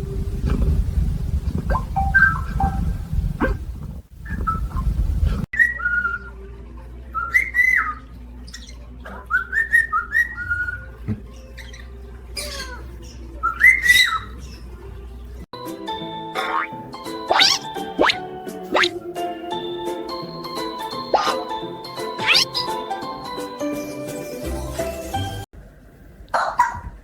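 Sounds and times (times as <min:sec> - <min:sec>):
parrot whistled calls: 0:01.7 - 0:02.9, 0:05.6 - 0:06.4, 0:09.3 - 0:10.8, 0:13.4 - 0:14.4, 0:16.4 - 0:19.0, 0:21.0 - 0:21.6, 0:22.2 - 0:22.8.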